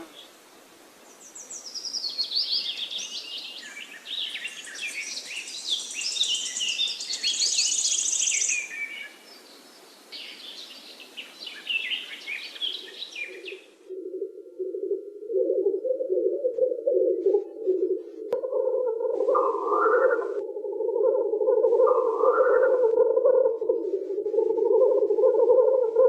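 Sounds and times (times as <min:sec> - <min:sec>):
outdoor ambience hiss: 0:00.0 - 0:15.3
songbirds singing: 0:01.0 - 0:14.0, 0:15.5 - 0:26.0.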